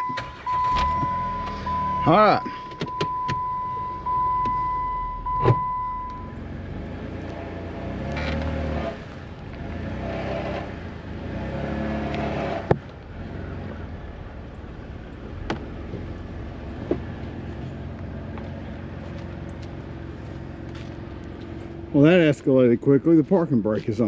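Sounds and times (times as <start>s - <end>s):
car engine revving: 5.1s - 22.3s.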